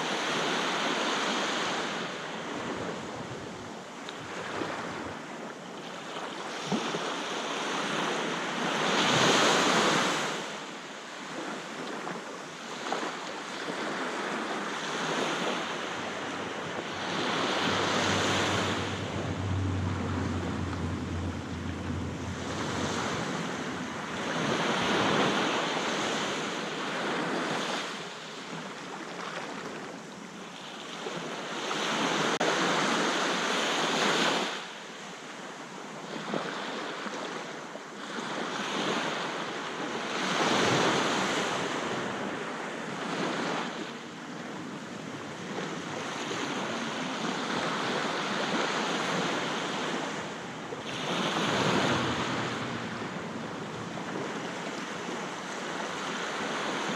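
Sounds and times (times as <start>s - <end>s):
sea waves breaking on beach: 0.0s - 34.8s, 38.0s - 56.9s.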